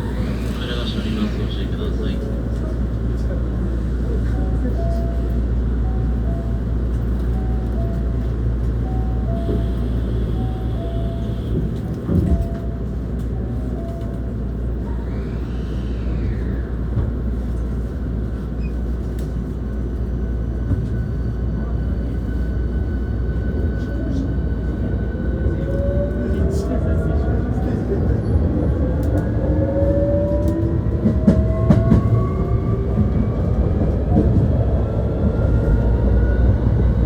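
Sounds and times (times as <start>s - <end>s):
train wheels rumbling on rail: 0.0s - 37.0s
faint rising and falling tones: 14.8s - 17.4s.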